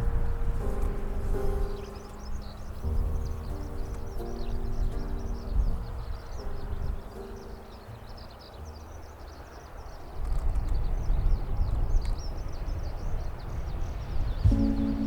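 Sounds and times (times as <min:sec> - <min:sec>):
faint musical tones: 0:00.0 - 0:10.5, 0:14.4 - 0:15.0
small birds chirping: 0:00.0 - 0:15.0
wind buffeting microphone: 0:00.0 - 0:15.0.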